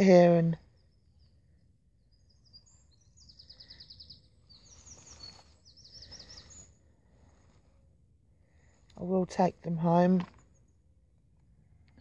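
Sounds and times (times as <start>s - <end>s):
faint songbird trills: 0.1s - 7.5s.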